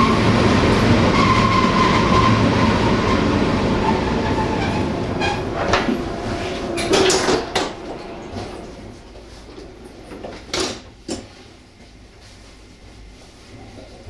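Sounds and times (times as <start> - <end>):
train slowing down: 0.0 - 14.0.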